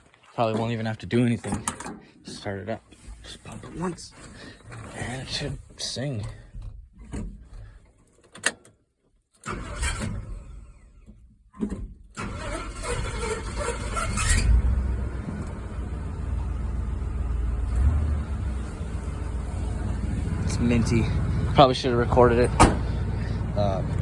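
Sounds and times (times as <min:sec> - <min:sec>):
engine cranking and running: 0:09.5 - 0:11.1, 0:12.2 - 0:24.0.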